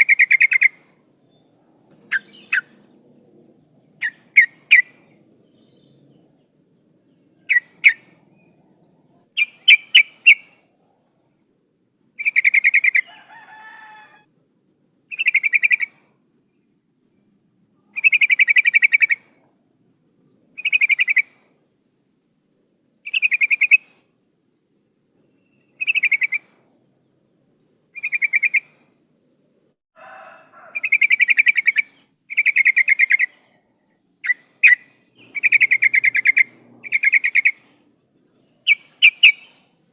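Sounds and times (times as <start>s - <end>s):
faint lower bird calls: 0.0s - 11.4s, 12.0s - 21.6s, 23.0s - 29.1s, 30.1s - 39.9s
bird calling bubbly phrases: 34.2s - 37.6s.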